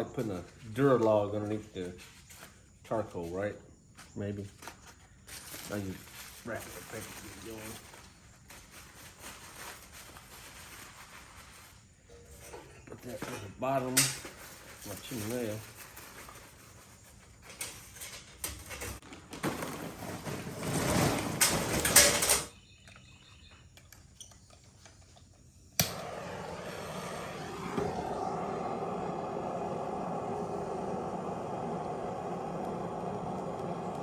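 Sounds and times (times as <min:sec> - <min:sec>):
charcoal clattering: 0:17.4 - 0:22.5
steady low hum: 0:25.8 - 0:34.0.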